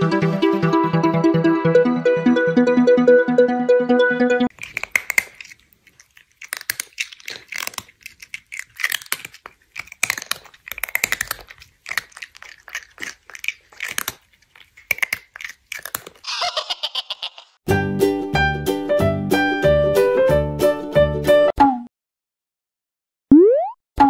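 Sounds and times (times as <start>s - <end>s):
crunchy chewing of food: 4.5s - 16.3s.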